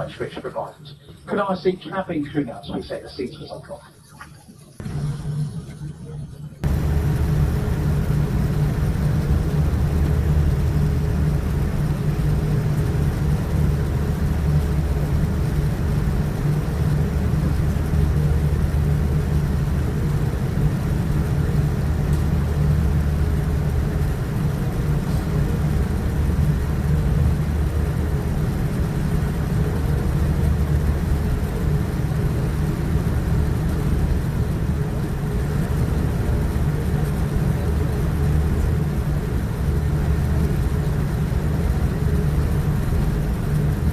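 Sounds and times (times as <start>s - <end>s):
jet engines rumbling in cabin: 0.0s - 43.9s.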